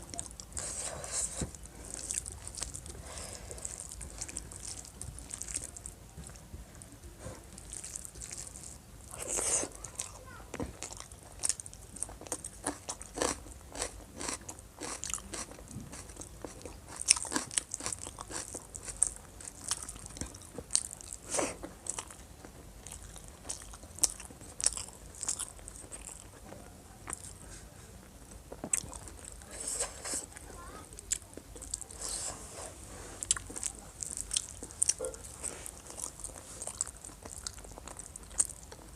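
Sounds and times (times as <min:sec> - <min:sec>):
crunching and chewing food: 0:00.0 - 0:38.9.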